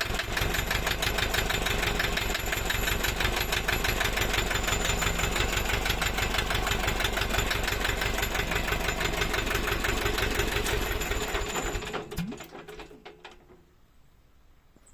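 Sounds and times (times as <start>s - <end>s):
diesel engine running: 0.0s - 12.5s.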